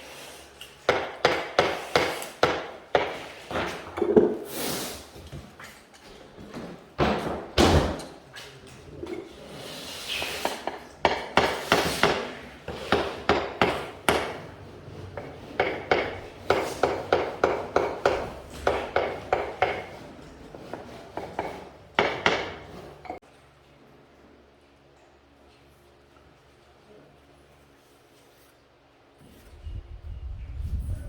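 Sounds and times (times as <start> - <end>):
hammer knocking: 0.9 - 3.7, 10.6 - 14.5, 15.2 - 23.2.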